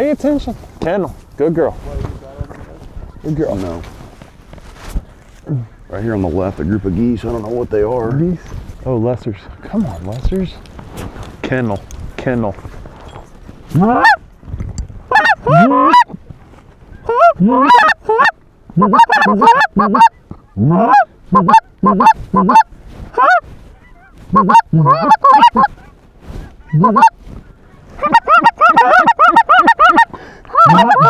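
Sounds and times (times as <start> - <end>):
geese honking and clucking: 13.7 - 14.2, 15.1 - 16.2, 17.0 - 31.0.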